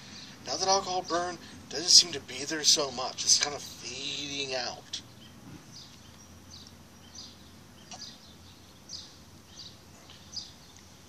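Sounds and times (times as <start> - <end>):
quiet outdoor background noise: 0.0 - 11.0
small bird chirping: 5.0 - 11.0.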